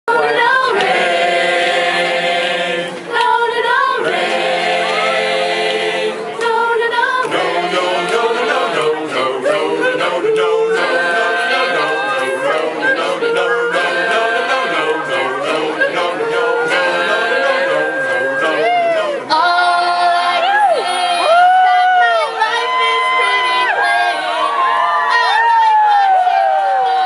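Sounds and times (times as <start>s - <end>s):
a cappella group singing harmony: 0.1s - 27.0s.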